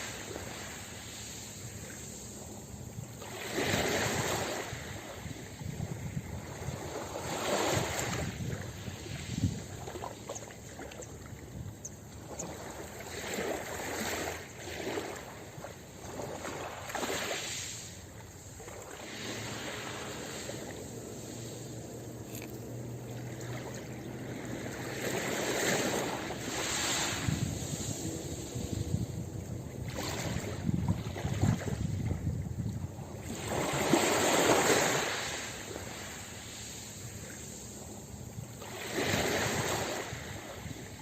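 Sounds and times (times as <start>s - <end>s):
ocean waves washing onto beach: 0.0s - 41.0s
wind: 0.0s - 41.0s.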